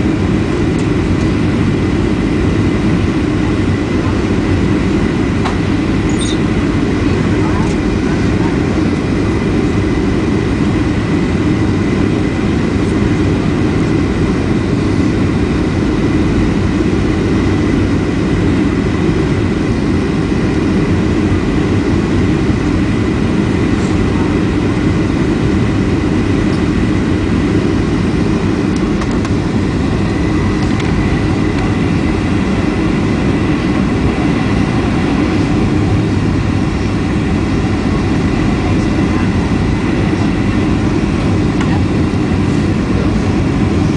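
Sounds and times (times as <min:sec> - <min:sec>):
airliner engines and airflow rushing: 0:00.0 - 0:43.9
faint high whine: 0:06.0 - 0:06.6.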